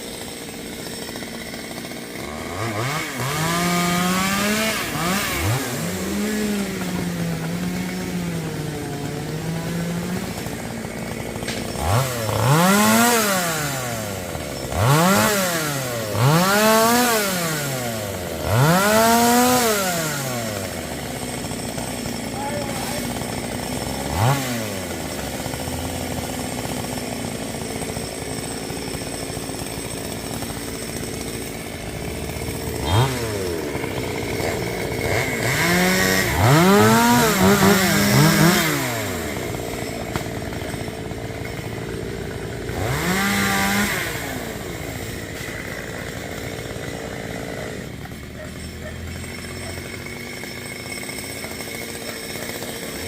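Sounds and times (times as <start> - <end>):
chainsaw engine idling and revving: 0.0 - 53.0.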